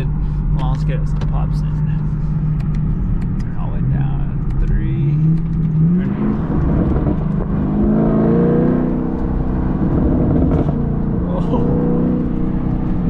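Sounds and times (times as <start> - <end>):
car engine revving: 0.0 - 13.0
exhaust pops: 0.5 - 7.9, 8.8 - 11.6.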